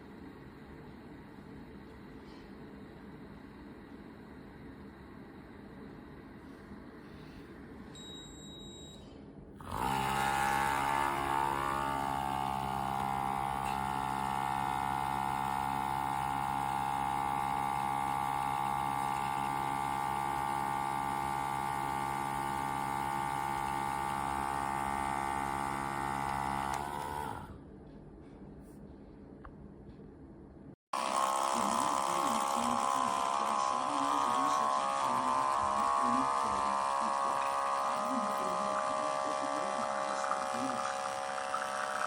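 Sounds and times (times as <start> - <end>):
small electric pump buzzing: 9.6 - 27.6, 30.9 - 42.0.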